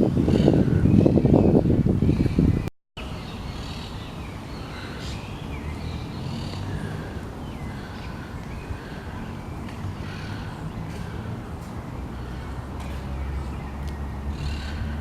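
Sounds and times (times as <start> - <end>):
wind blast on microphone: 0.0 - 2.7
birds calling and chirping: 0.0 - 15.0.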